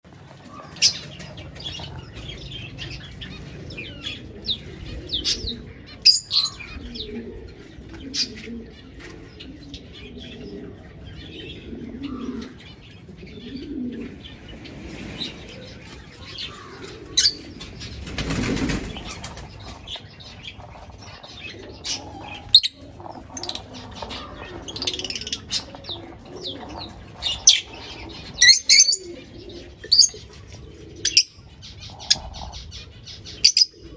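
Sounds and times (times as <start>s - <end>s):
cage birds chirping: 0.0s - 33.9s
wings flapping: 0.1s - 7.2s, 14.7s - 29.2s.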